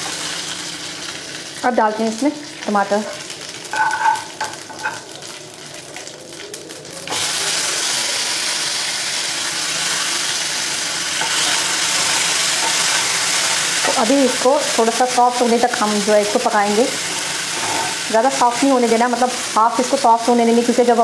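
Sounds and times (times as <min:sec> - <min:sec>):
tomatoes sizzling in oil: 0:00.0 - 0:21.0
metal spoon clinking on pan: 0:03.7 - 0:05.0.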